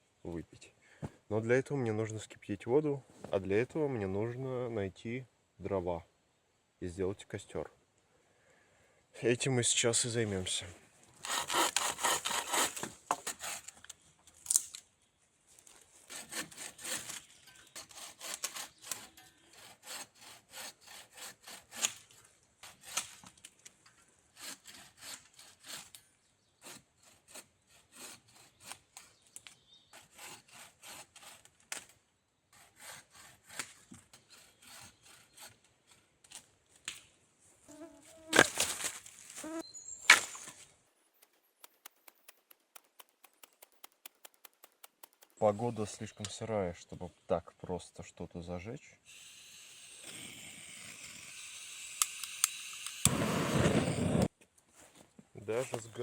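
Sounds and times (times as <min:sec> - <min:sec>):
bow saw cutting wood: 0:11.2 - 0:13.8, 0:16.1 - 0:23.3, 0:24.3 - 0:36.5, 0:49.1 - 0:54.3.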